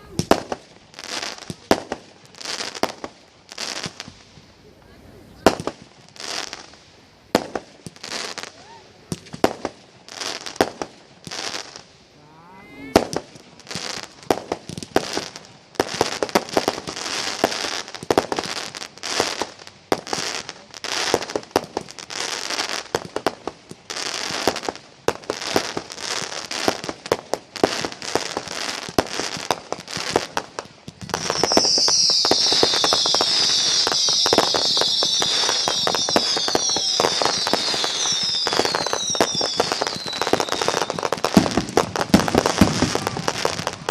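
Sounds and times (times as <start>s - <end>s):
fireworks bursting and crackling: 0.0s - 43.9s
high falling firework whistles: 31.0s - 43.9s.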